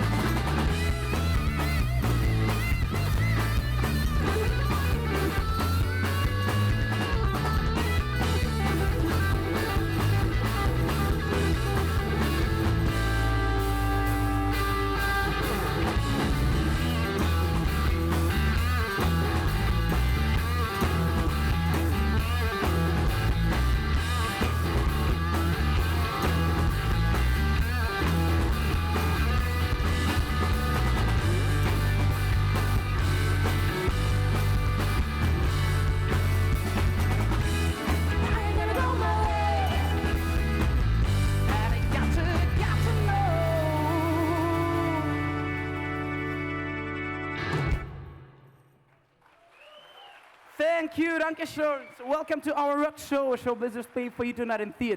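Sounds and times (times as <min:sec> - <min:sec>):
rock band playing: 0:00.0 - 0:48.6.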